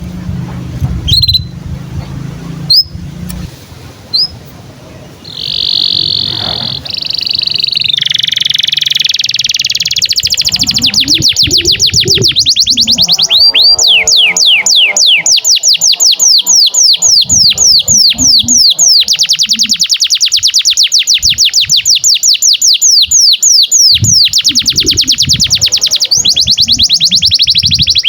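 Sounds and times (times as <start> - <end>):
canary singing: 1.0 - 28.0
low hum: 9.6 - 19.9.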